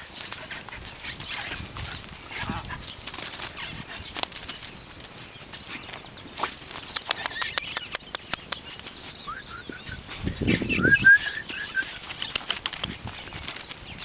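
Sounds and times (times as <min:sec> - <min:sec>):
bird chirping rising notes: 0:05.2 - 0:12.3.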